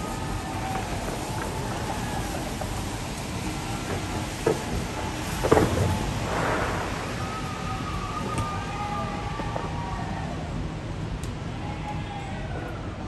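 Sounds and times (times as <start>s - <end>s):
fireworks rumble and crackle: 0.0s - 13.0s
fireworks bang: 0.5s - 9.7s.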